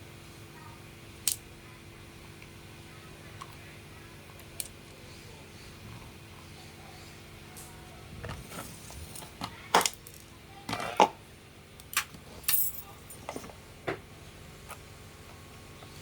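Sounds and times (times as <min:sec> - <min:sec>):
metal parts clinking: 0:11.9 - 0:13.4.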